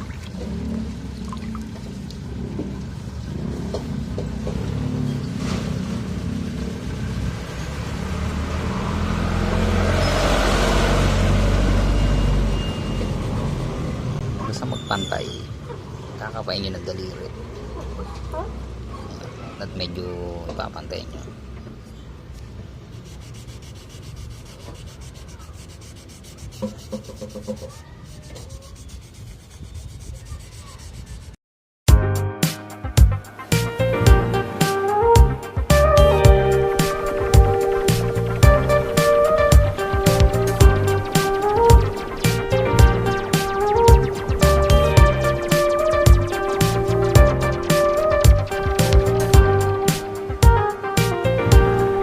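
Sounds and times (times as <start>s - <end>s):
vehicle engine rumble: 0.0s - 16.2s, 35.1s - 52.0s
sandpaper rubbing on car paint: 22.7s - 31.4s.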